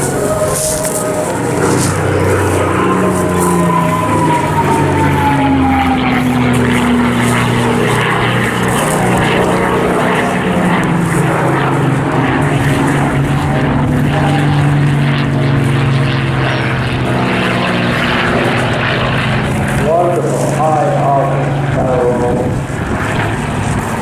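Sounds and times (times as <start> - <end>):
propeller aircraft flying past: 0.0 - 24.0.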